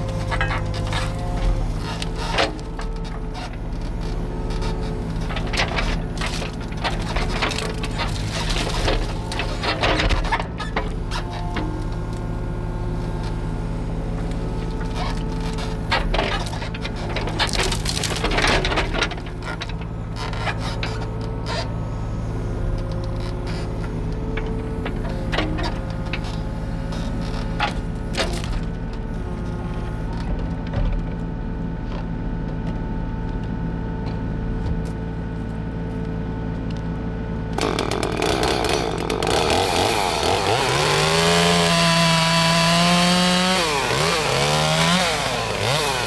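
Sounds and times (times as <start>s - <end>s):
wood cracking and snapping: 0.0s - 10.6s, 14.0s - 21.0s, 37.6s - 46.0s
excavator diesel engine running: 0.0s - 46.0s.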